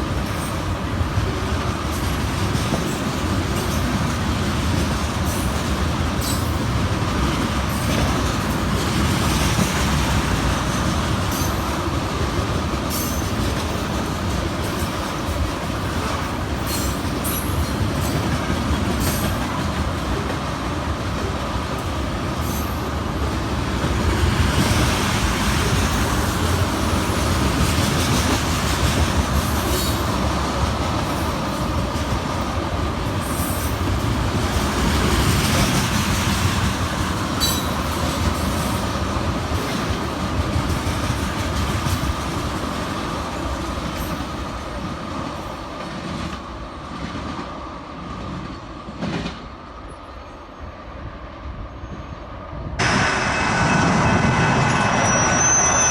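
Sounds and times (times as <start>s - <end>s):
freight train rumbling: 0.0s - 55.9s
high wheel squeal: 52.8s - 55.9s.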